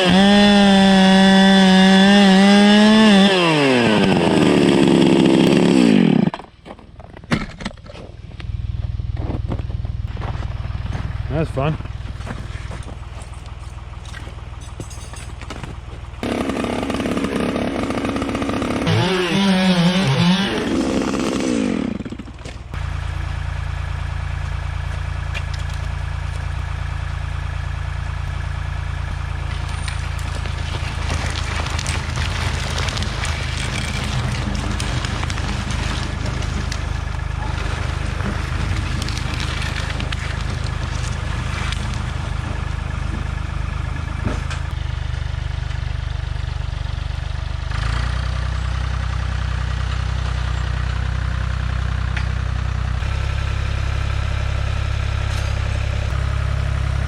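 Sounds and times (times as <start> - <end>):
chainsaw revving: 0.0 - 6.4, 16.2 - 22.4, 30.1 - 42.3
low engine drone: 7.8 - 16.3.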